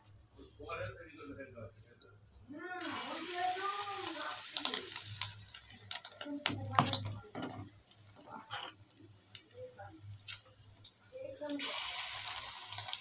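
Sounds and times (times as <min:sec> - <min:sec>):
batter frying in oil: 0:02.8 - 0:13.0.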